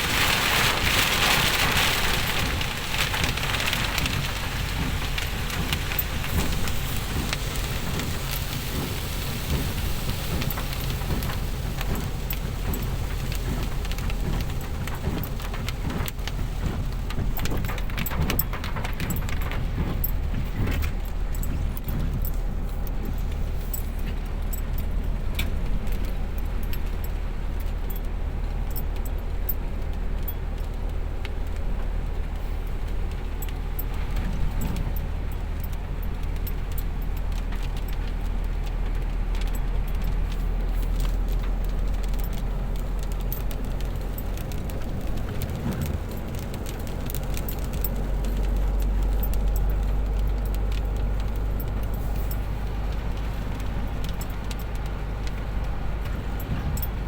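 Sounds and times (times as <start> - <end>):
light rain falling: 0.0 - 57.0
low rumble: 39.5 - 57.0.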